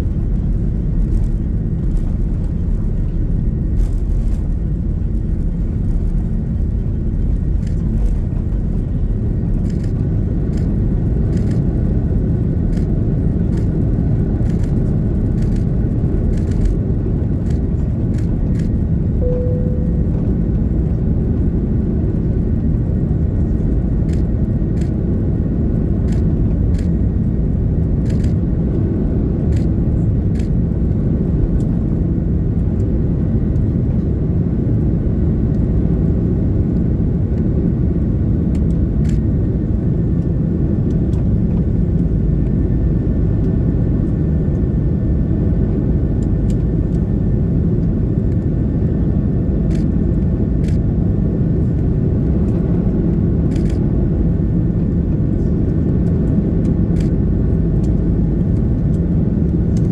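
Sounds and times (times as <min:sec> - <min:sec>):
aircraft cabin rumble: 0:00.0 - 0:59.9
faint high tones: 0:19.2 - 0:20.5.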